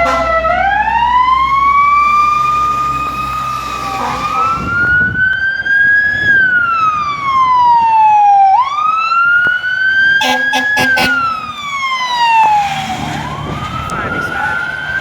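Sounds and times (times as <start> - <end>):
fire truck siren wailing: 0.0 - 15.0
short horn blasts: 10.2 - 11.4.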